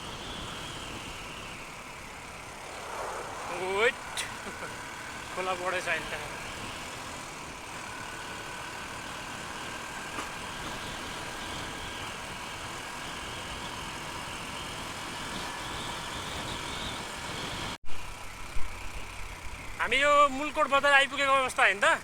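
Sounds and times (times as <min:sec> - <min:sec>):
wind rush on microphone: 0:02.4 - 0:05.8.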